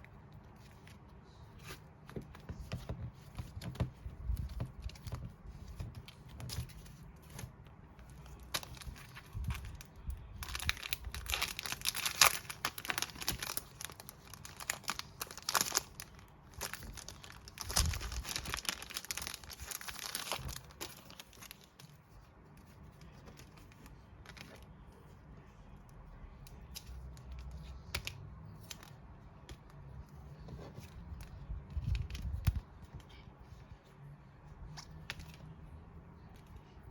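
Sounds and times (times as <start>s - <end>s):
packaging crinkling: 8.2s - 21.9s.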